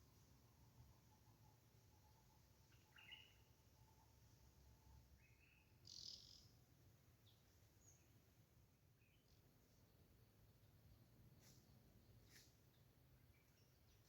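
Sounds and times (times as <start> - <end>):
wild birds chirping: 2.6 - 3.6, 5.2 - 8.3.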